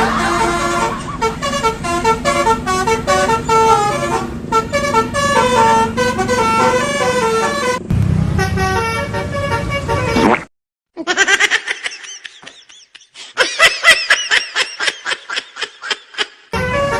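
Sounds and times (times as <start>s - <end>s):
multi-tone bus horn tune: 0.0s - 10.2s, 16.6s - 16.9s.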